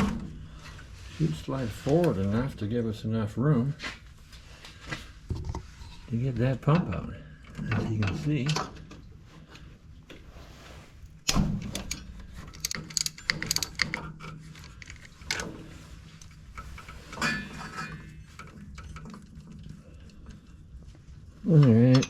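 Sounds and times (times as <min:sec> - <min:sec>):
wrenches and ratchet clattering: 0:11.6 - 0:20.5.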